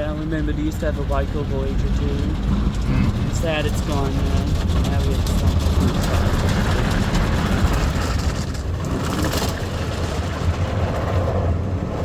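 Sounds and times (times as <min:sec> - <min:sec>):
car wash machinery humming: 0:00.0 - 0:08.9.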